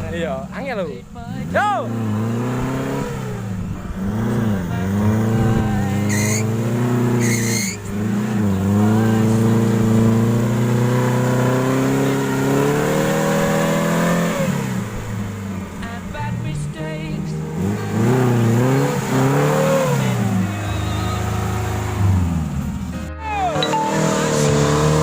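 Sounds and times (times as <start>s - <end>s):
off-road vehicle engine revving: 0.0s - 25.0s
short high squeals: 6.0s - 6.6s, 7.2s - 8.0s.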